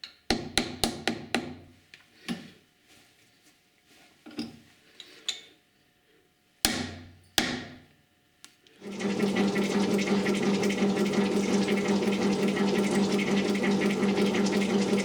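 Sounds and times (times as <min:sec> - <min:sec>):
metal shaper running: 0:08.8 - 0:15.0.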